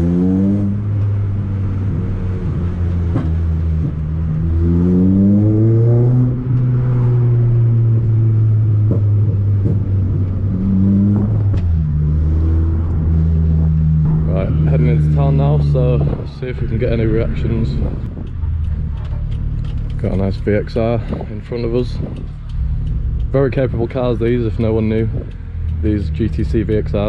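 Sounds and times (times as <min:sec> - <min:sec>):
car engine accelerating: 0:00.0 - 0:27.0
road noise: 0:00.0 - 0:27.0
sharp ticks: 0:16.8 - 0:27.0.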